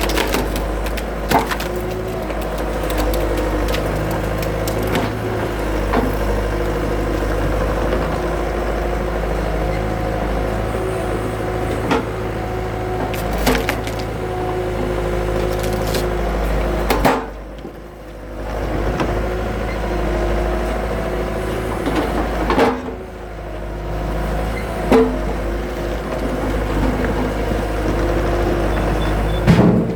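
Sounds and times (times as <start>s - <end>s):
wood splitting cracks: 0.0s - 6.4s, 13.0s - 17.3s
skid steer engine running: 0.0s - 29.9s.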